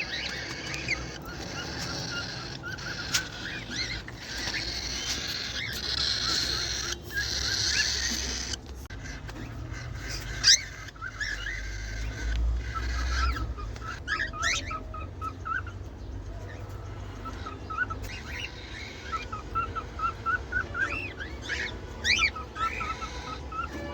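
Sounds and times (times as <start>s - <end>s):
cage birds chirping and whistling: 0.0s - 23.9s.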